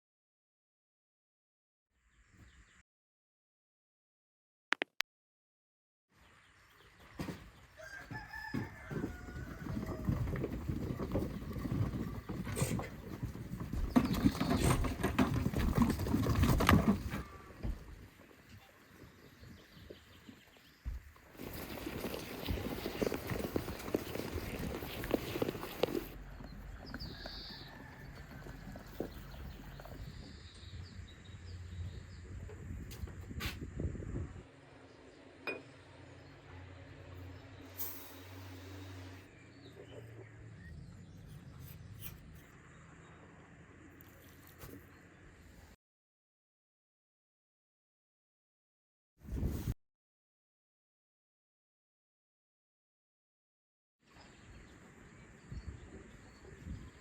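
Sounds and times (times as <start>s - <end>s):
outdoor village ambience: 1.9s - 2.8s, 6.1s - 45.8s, 54.0s - 57.0s
rooster crowing: 7.8s - 10.3s, 27.0s - 29.1s.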